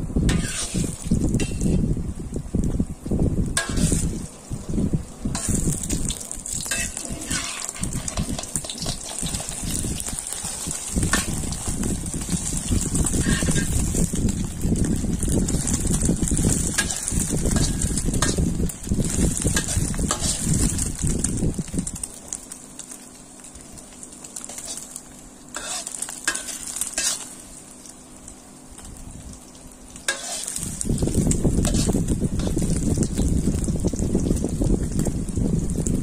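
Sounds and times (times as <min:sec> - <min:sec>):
omelet sizzling in hot oil: 0:00.0 - 0:36.0
metal spatula scraping a wok: 0:00.3 - 0:01.8, 0:03.6 - 0:04.2, 0:05.3 - 0:11.7, 0:12.4 - 0:14.0, 0:15.2 - 0:21.1, 0:24.4 - 0:27.4, 0:30.1 - 0:32.8
low rumble: 0:30.6 - 0:36.0.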